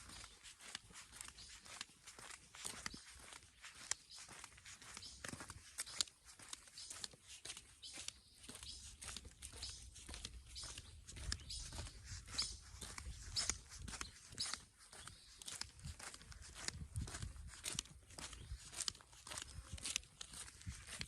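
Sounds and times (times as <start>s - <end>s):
footsteps crunching on gravel: 0.0s - 21.0s
wind rumble on microphone: 15.8s - 17.8s.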